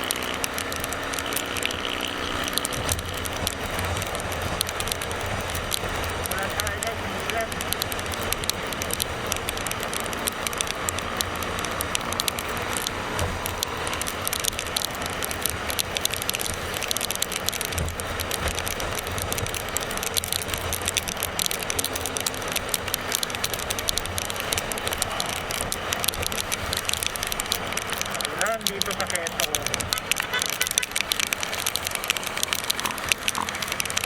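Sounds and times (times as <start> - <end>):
crackle of small ticks: 0.0 - 34.0
motorcycle engine hum: 0.0 - 34.0
wind and road noise: 0.0 - 34.0.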